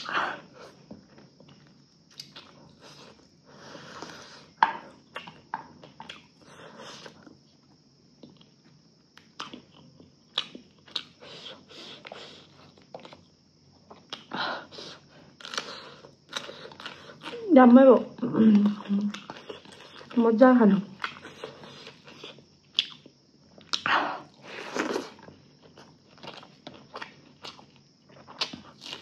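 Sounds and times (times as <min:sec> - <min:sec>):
person chewing food: 0:00.0 - 0:17.5, 0:18.4 - 0:20.2, 0:20.9 - 0:29.0.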